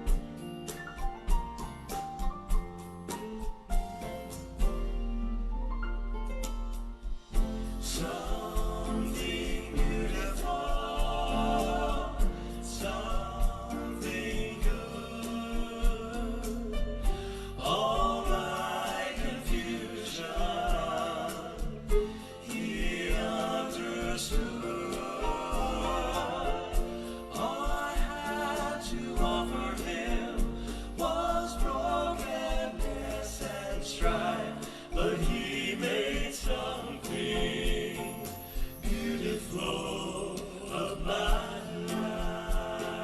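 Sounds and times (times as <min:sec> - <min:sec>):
musical accompaniment: 0:00.0 - 0:43.0
voices singing gospel: 0:07.2 - 0:43.0.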